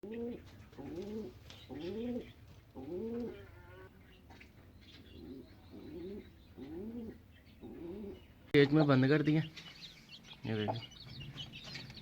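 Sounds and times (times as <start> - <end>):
pigeon cooing: 0.0 - 4.0, 5.1 - 8.3.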